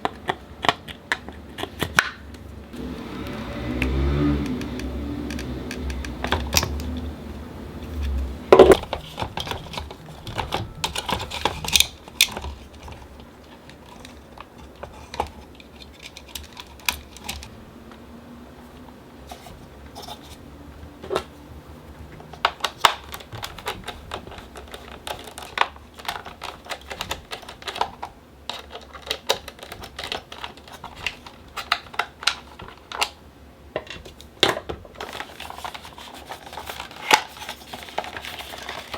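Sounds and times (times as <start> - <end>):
plastic parts clicking and tapping: 3.8 - 7.1, 7.8 - 17.5, 22.1 - 33.2, 33.8 - 38.9.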